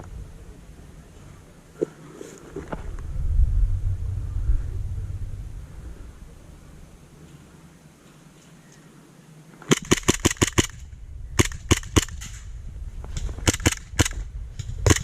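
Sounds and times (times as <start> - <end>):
airsoft guns firing: 9.7 - 12.5, 13.2 - 15.0.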